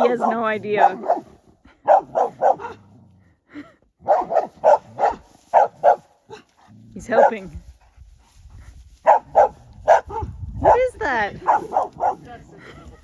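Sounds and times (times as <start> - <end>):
dog barking: 0.0 - 2.8, 4.0 - 6.1, 7.1 - 7.5, 9.0 - 12.3.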